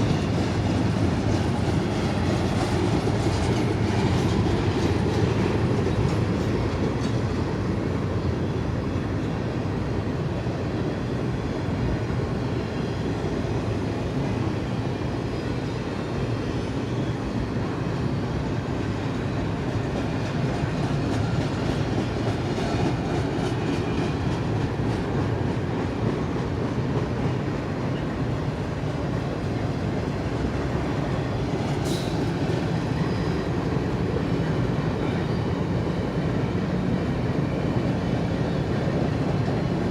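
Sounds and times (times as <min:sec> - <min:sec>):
freight train rumbling past: 0:00.0 - 0:39.9
high squeal: 0:31.2 - 0:33.6.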